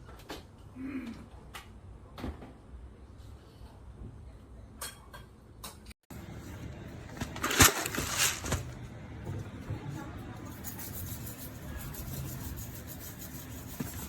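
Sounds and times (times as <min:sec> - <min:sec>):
rustling and scraping handling: 0:06.2 - 0:14.0.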